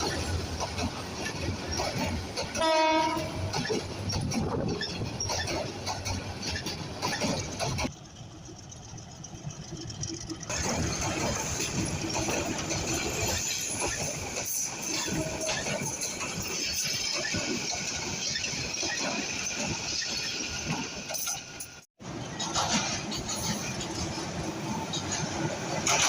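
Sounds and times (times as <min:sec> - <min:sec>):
train clattering on rails: 0:00.0 - 0:26.0
locomotive horn blast: 0:02.6 - 0:03.5.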